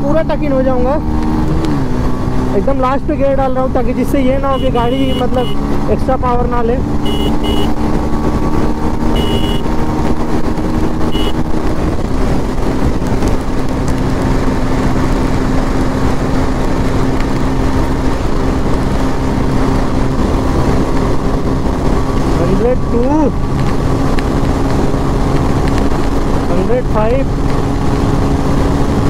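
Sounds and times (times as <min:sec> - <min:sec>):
motorcycle engine running hard: 0:00.0 - 0:29.0
wind rushing over microphone: 0:00.0 - 0:29.0
short high beeps: 0:07.1 - 0:07.7, 0:09.2 - 0:09.6.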